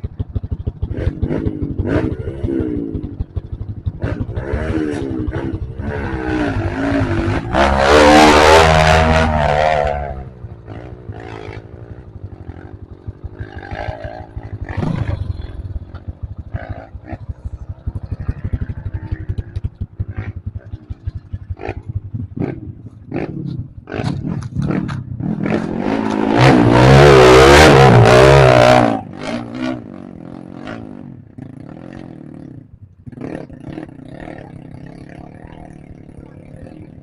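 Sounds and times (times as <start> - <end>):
motorcycle engine revving: 0.0 - 37.0
sharp knocks and clatters: 23.9 - 26.2.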